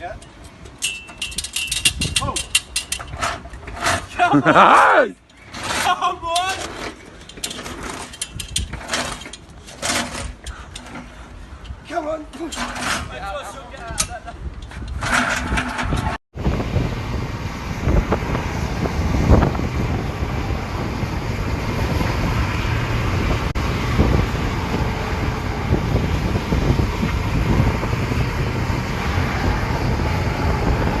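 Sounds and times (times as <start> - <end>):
vehicle noise: 0.0 - 31.0
wind rumble on microphone: 1.3 - 4.2, 7.9 - 9.3, 12.8 - 31.0.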